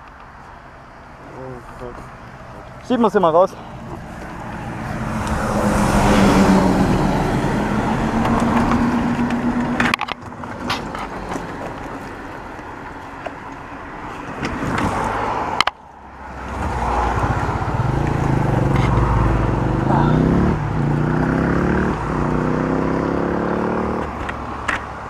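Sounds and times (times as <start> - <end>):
road noise: 0.0 - 25.0
vehicle engine running: 1.2 - 14.0, 16.3 - 22.6.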